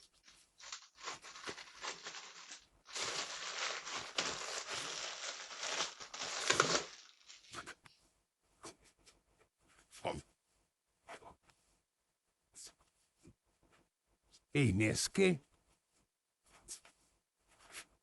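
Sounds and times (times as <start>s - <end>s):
packaging crinkling and tearing: 0.2s - 7.6s.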